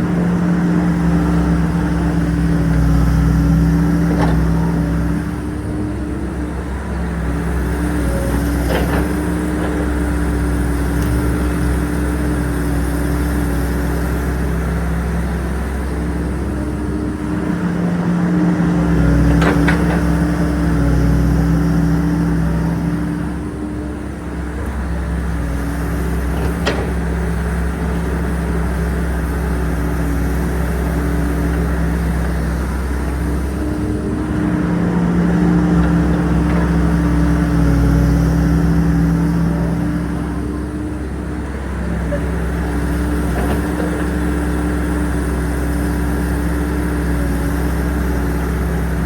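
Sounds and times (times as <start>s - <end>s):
diesel engine running: 0.0s - 49.0s.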